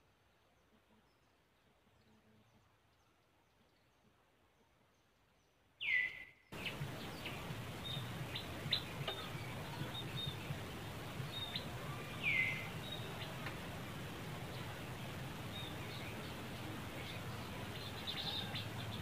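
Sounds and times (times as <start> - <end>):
faint chirps and ticks: 0.4 - 19.0.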